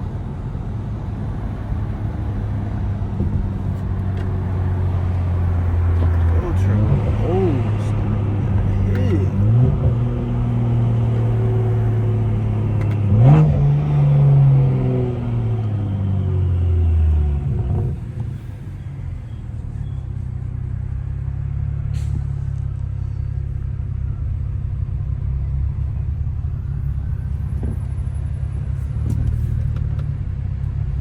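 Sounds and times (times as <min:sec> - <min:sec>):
car exhaust low rumble: 0:00.0 - 0:31.0.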